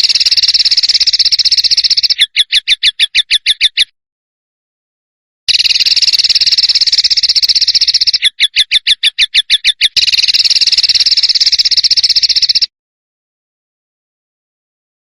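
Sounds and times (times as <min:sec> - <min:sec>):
bird chirps: 0:00.0 - 0:03.9, 0:05.5 - 0:12.7
bird rapid rattling trill: 0:00.0 - 0:03.9, 0:05.5 - 0:12.7.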